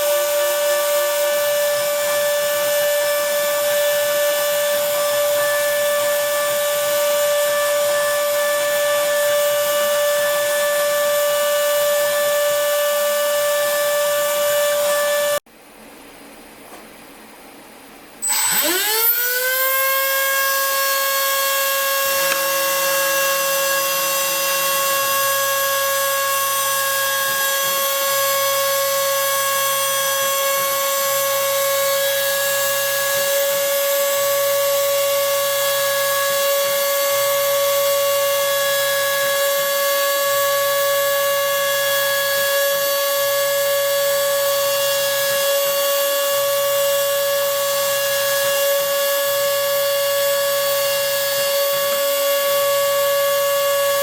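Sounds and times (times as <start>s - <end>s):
spindle motor whine: 0.0s - 15.4s, 18.2s - 54.0s
stepper motors buzzing: 18.2s - 54.0s.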